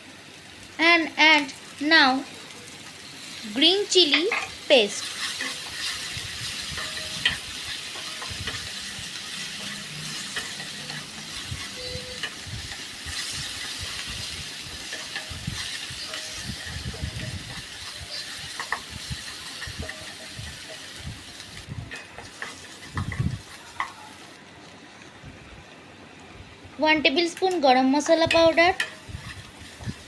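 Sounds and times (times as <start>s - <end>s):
food sizzling in oil: 0.0s - 24.4s, 26.8s - 30.0s
spoon scraping a pan: 4.1s - 20.9s.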